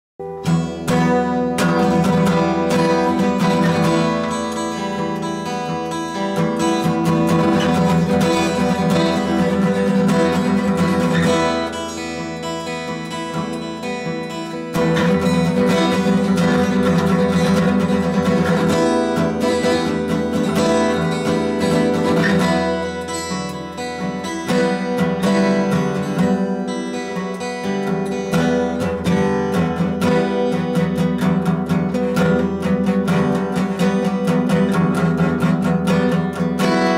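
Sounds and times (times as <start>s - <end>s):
strummed acoustic guitar music: 0.2s - 36.9s.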